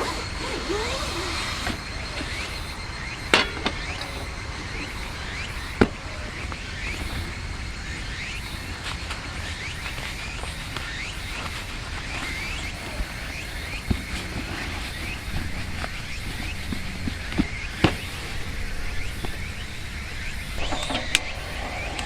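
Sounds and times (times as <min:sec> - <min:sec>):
steady hiss and low rumble: 0:15.1 - 0:22.0.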